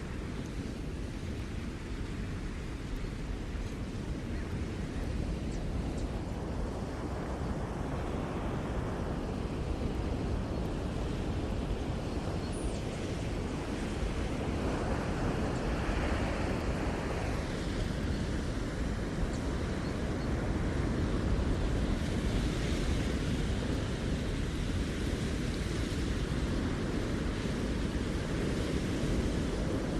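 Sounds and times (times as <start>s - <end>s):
waves breaking on shore: 0.0s - 29.9s.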